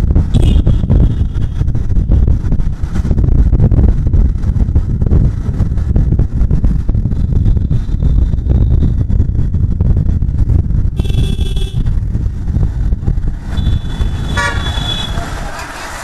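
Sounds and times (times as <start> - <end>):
motorcycle engine and road noise: 0.0 - 16.0
wind buffeting on microphone: 0.0 - 16.0
vehicle horn: 0.4 - 1.3, 11.0 - 11.9, 13.5 - 15.2.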